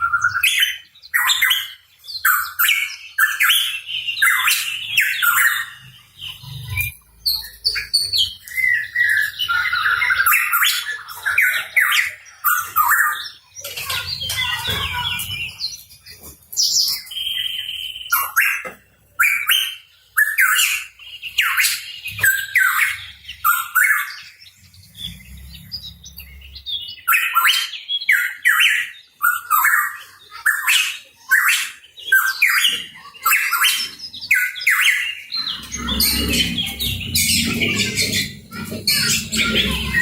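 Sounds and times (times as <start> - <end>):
bird calling harsh notes: 27.1 - 40.0.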